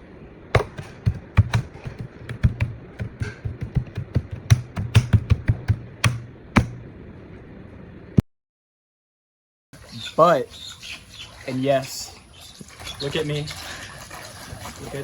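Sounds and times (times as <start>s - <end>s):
faint low hum: 0.0s - 8.2s
sharp taps and clicks: 0.6s - 6.8s.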